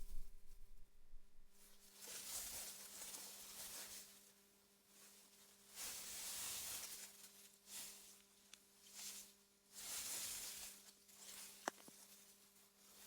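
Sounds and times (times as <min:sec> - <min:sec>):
faint steady hum: 0:00.0 - 0:01.9.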